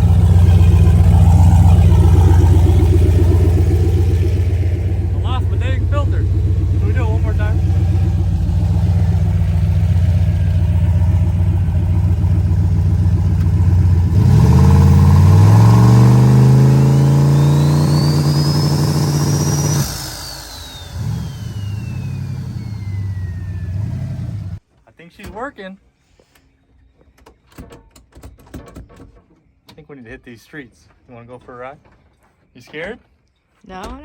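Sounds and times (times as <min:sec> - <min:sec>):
car engine idling and revving: 0:00.0 - 0:24.6
turbo whistle: 0:16.7 - 0:23.6.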